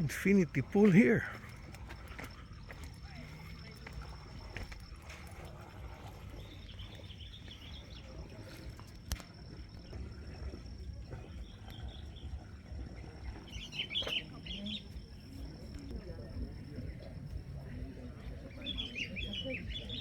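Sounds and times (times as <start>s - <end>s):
small birds twittering: 0.0s - 9.0s, 9.7s - 20.0s.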